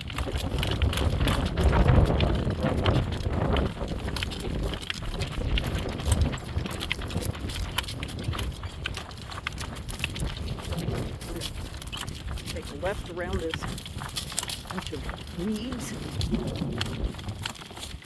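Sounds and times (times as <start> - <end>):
harness and cart rattling: 0.0 - 18.0
horse hoofbeats: 0.0 - 18.0
wind on microphone: 0.0 - 18.0.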